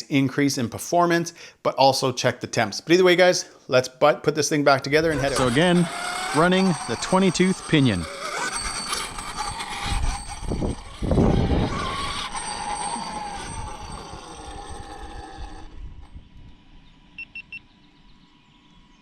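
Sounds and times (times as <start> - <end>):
tyre and drivetrain noise: 5.0 - 16.6
rc truck motor whine: 5.0 - 19.0.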